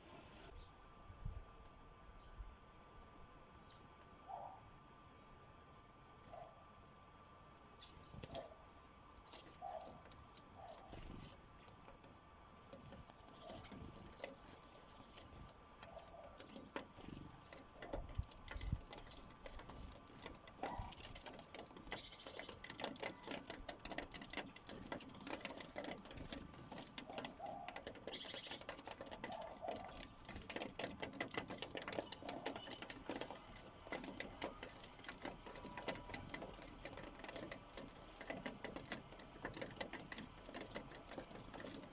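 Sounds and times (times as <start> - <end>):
sparrows chirping: 0.1 - 0.8, 7.2 - 12.1, 12.8 - 41.9
beaks tapping on feeder: 9.4 - 41.9.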